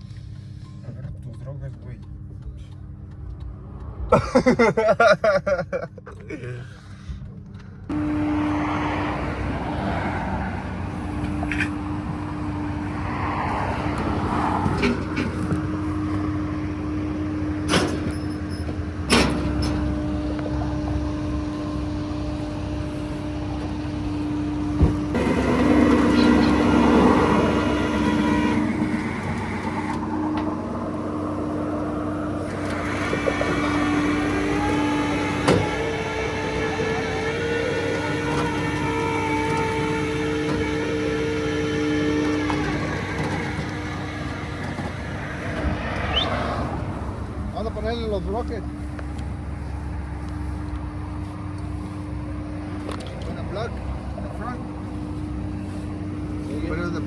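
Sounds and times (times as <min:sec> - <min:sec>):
motor vehicle humming: 0:00.0 - 0:57.0.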